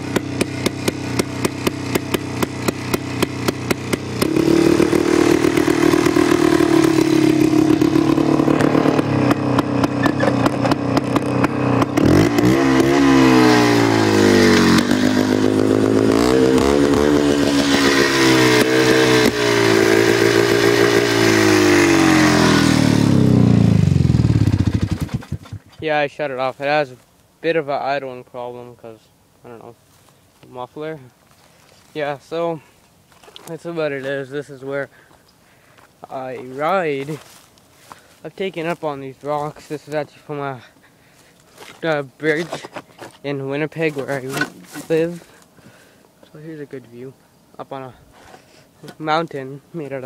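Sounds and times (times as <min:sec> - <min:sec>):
two-stroke engine revving: 0:00.0 - 0:25.8.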